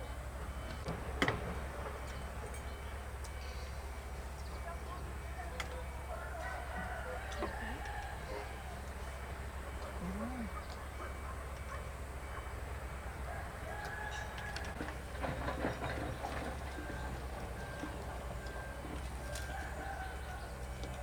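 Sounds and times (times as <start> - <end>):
rooster crowing: 6.1 - 9.1, 13.0 - 14.9, 18.6 - 20.9
chickens calling: 6.1 - 17.4.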